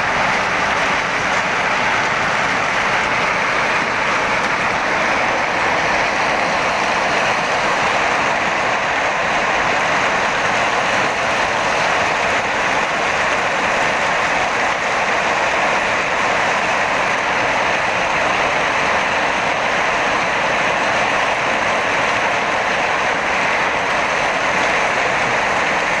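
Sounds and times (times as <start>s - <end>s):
hail and rain pelting down: 0.0s - 26.0s.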